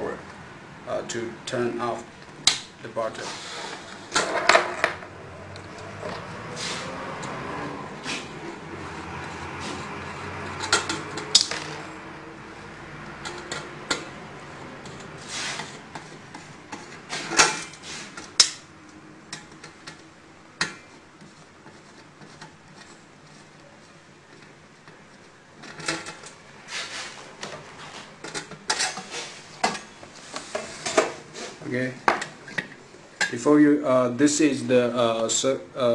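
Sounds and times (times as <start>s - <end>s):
metal parts and tools clinking: 10.4s - 11.9s.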